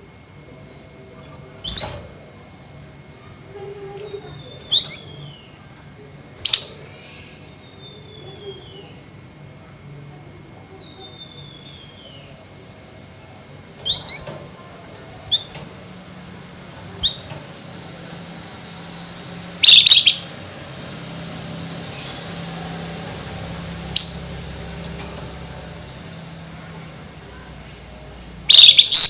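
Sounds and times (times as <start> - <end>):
low steady hum: 0.0 - 29.0
songbird chirping: 3.1 - 9.4, 10.6 - 29.0
harsh bird chatter: 13.8 - 27.2, 28.4 - 29.0.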